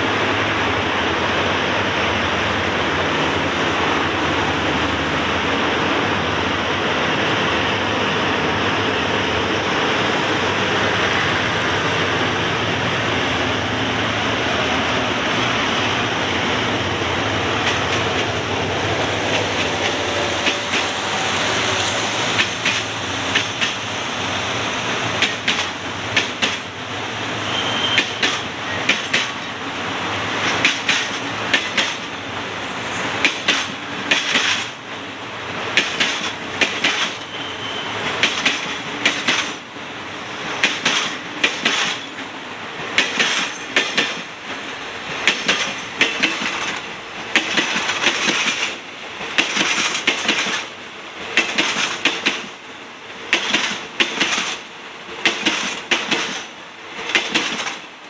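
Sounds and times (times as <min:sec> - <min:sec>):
train rumble and wheel noise: 0:00.0 - 0:58.0
wheels clacking over rail joints: 0:15.5 - 0:21.0, 0:22.2 - 0:23.9, 0:25.0 - 0:26.8, 0:27.7 - 0:29.6, 0:30.4 - 0:32.2, 0:32.9 - 0:34.8, 0:35.7 - 0:37.4, 0:38.0 - 0:39.7, 0:40.5 - 0:52.6, 0:53.2 - 0:58.0.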